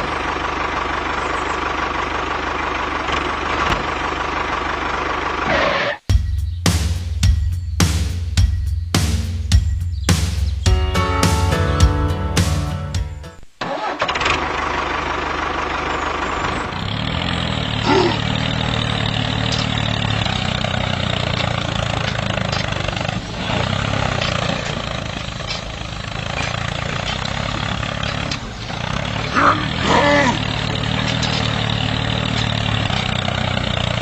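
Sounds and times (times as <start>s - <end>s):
background music: 6.1s - 13.5s.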